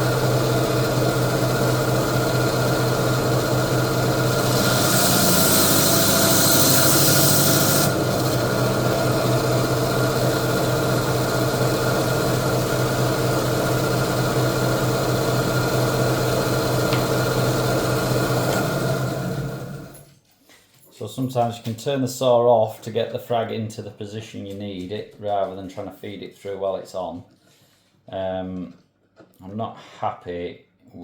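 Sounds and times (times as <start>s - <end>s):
electric saw motor hum: 0.0s - 20.0s
saw blade grinding coral: 4.2s - 8.5s.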